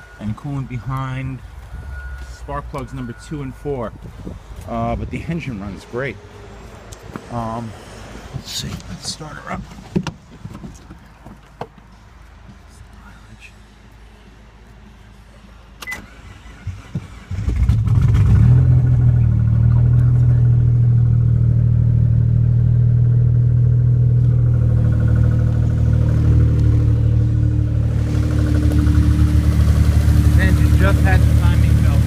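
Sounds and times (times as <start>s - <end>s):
car engine idling loudly: 23.2s - 32.0s.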